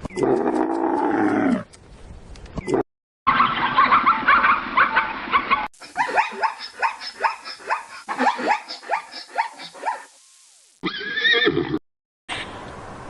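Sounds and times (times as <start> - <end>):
horse wavering whinny: 10.8 - 11.8.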